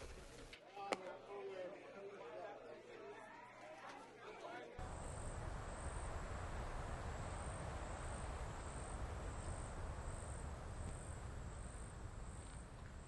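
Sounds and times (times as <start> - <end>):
insects trilling: 4.8 - 13.0
low background rumble: 4.8 - 13.0.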